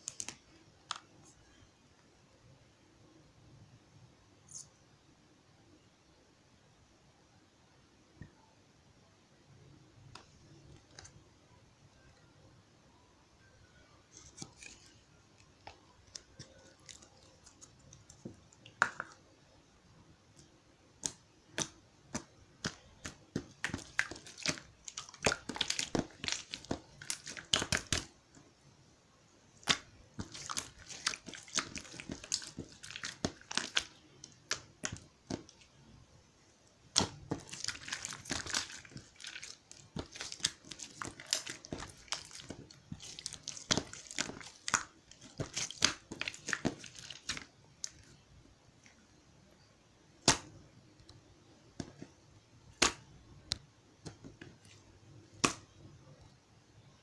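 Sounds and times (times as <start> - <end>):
crinkly rustling: 37.2 - 48.2.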